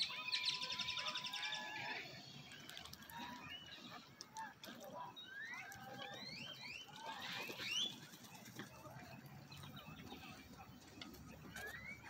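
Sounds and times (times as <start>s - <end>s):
birds whistling upward: 0.0s - 4.0s, 5.1s - 8.0s, 11.4s - 12.0s.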